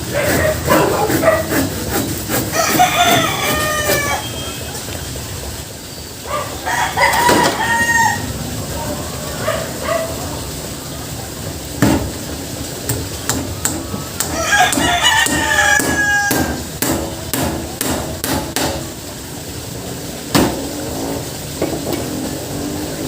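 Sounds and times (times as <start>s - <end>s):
rooster crowing: 2.5s - 4.8s, 6.3s - 10.2s, 14.0s - 16.7s
hammer striking nails: 13.3s - 18.8s.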